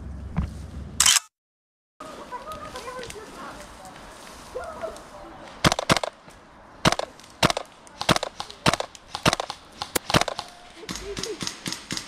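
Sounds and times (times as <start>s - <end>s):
airsoft gun shots: 5.6s - 6.2s, 6.8s - 12.0s.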